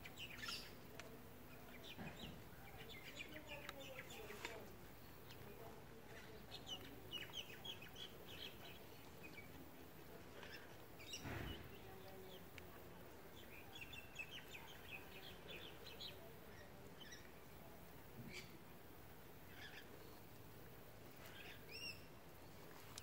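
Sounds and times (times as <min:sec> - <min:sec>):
faint birds chirping: 0:00.0 - 0:23.0
soil rustling: 0:20.0 - 0:23.0.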